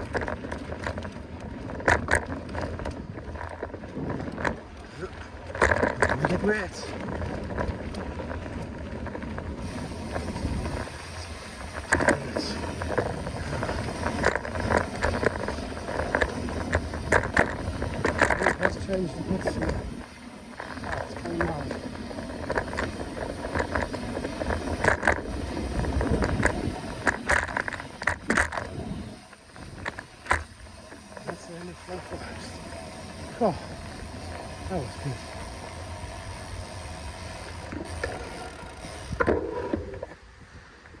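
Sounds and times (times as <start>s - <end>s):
wind buffeting microphone: 0.0s - 31.2s
faint clicks: 0.0s - 36.6s
bike tyre rumble: 0.0s - 41.0s.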